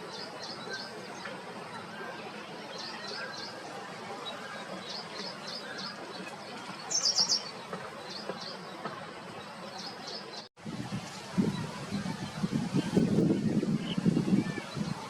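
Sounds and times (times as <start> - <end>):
outdoor background noise: 0.0 - 15.0
birds chirping: 2.6 - 10.5.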